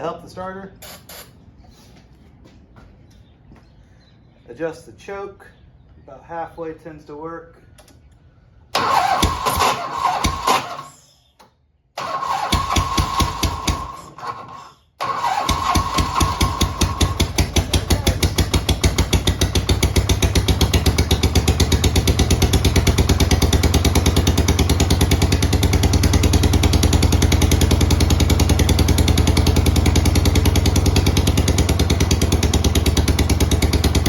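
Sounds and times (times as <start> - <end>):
motorcycle engine idling: 15.0 - 34.0.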